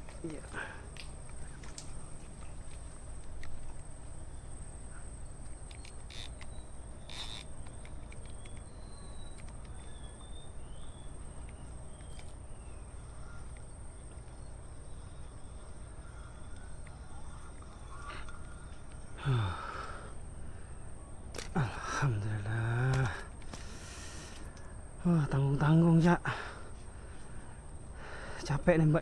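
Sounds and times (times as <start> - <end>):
faint clicks: 0.9 - 3.9, 5.4 - 10.4, 11.3 - 12.4, 16.4 - 19.1, 22.9 - 24.7
high-pitched insect drone: 4.1 - 26.2.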